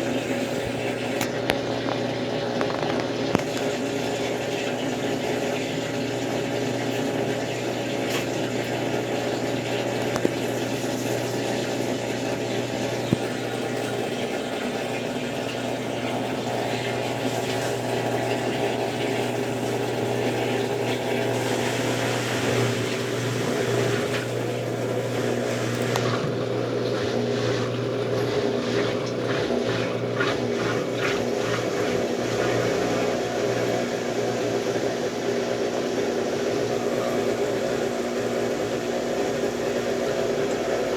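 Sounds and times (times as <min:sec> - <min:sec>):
washing machine motor: 0:00.0 - 0:40.9
water sloshing: 0:06.8 - 0:35.8.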